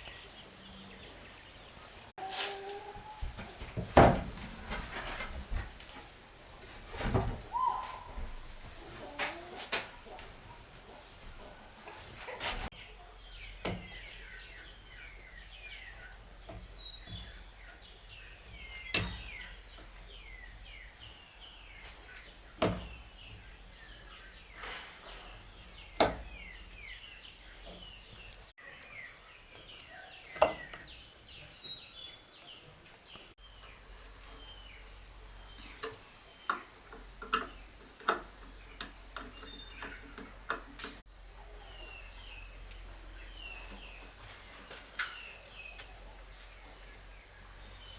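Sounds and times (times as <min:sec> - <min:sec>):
small birds chirping: 0:00.0 - 0:03.3, 0:10.9 - 0:47.9.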